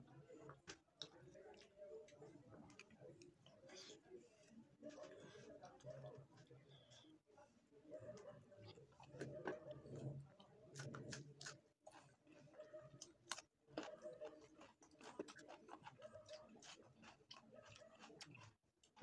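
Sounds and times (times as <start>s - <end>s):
man chewing and lip-smacking: 8.6s - 19.0s.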